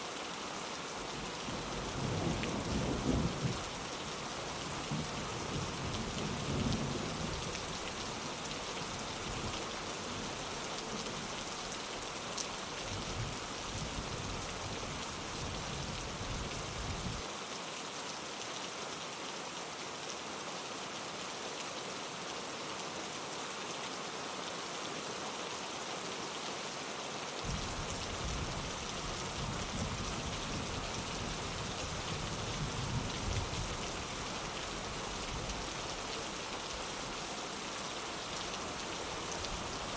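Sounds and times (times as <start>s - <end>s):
rain pattering on a window: 0.9s - 18.7s, 27.4s - 39.9s.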